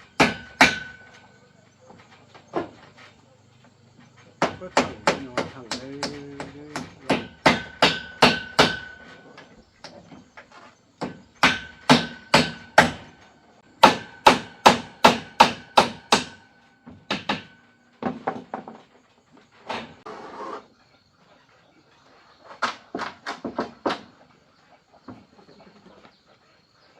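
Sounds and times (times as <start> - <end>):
hammer driving nails into wood: 0.1 - 1.3, 4.4 - 9.2, 11.0 - 13.1, 13.8 - 16.4, 17.1 - 18.6.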